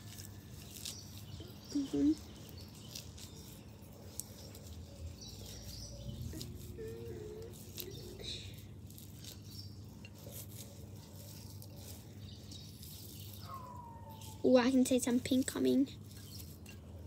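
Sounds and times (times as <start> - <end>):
distant bird chirps: 11.8 - 14.5.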